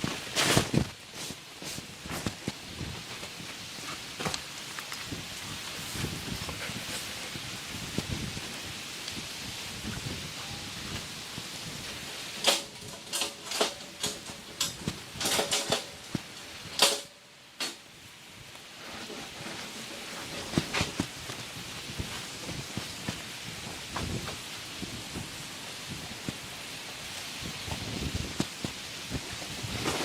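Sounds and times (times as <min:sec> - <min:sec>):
sharp rustles and knocks: 0:00.0 - 0:07.2, 0:12.3 - 0:17.9, 0:18.6 - 0:25.4, 0:27.1 - 0:30.0
rain hiss: 0:00.0 - 0:30.0.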